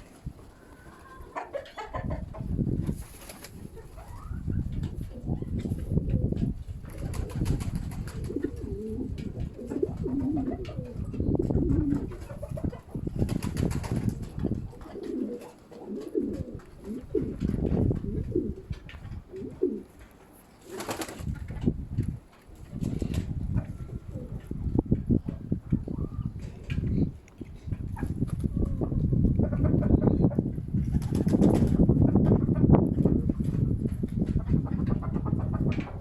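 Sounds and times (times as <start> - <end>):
pigeons cooing: 0.0 - 13.2, 14.3 - 21.3, 22.8 - 30.4
wind rumble on microphone: 0.0 - 19.9, 21.1 - 36.0.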